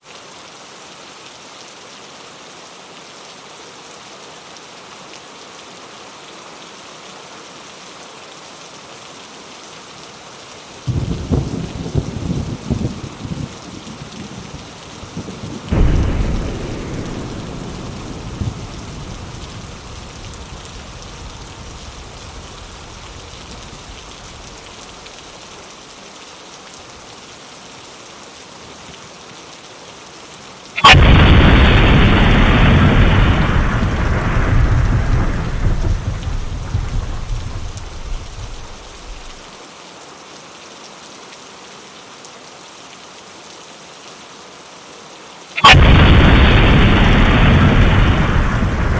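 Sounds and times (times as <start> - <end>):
steady rain: 0.0 - 48.9
loud sharp thunderclap: 10.9 - 24.6, 30.8 - 39.4, 45.6 - 48.9
thunder rumbling: 10.9 - 25.2, 30.8 - 39.4, 45.6 - 48.9.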